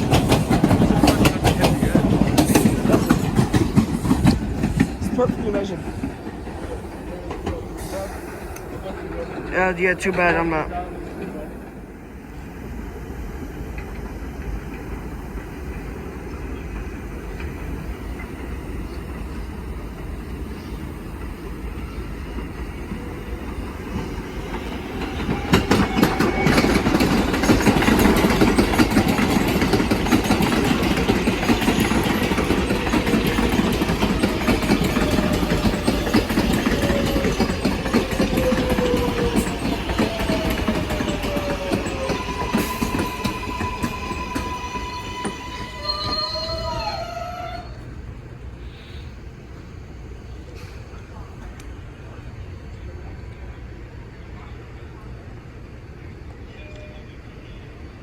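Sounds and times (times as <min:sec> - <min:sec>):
wheels clattering over rail joints: 0:00.0 - 0:11.8, 0:22.6 - 0:46.2
subway train rumbling: 0:00.0 - 0:58.0.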